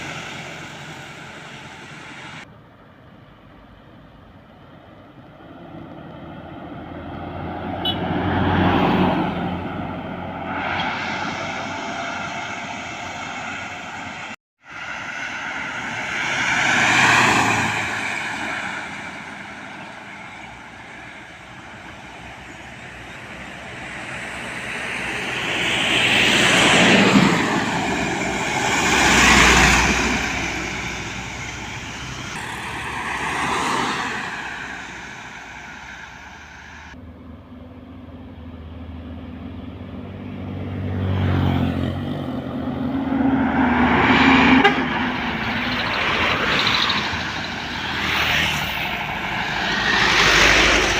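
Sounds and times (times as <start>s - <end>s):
trucks passing by: 0.0s - 50.9s
loud engine revving up: 6.2s - 13.9s, 23.4s - 37.0s, 40.6s - 50.9s.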